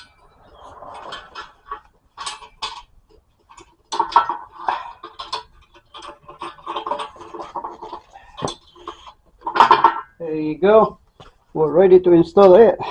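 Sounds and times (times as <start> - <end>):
metal tools clinking: 0.0 - 10.2.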